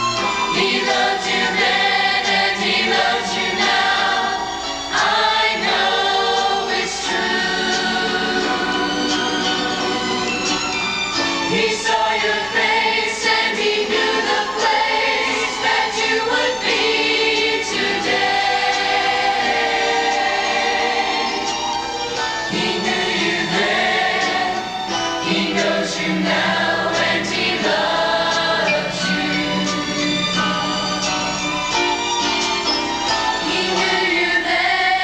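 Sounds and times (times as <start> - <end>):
choir singing held chords: 0.0 - 35.0.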